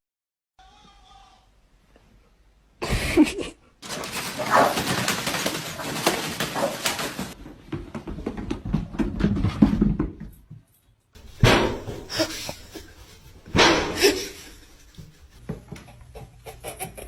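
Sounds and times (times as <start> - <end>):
dog barking: 3.9 - 5.1.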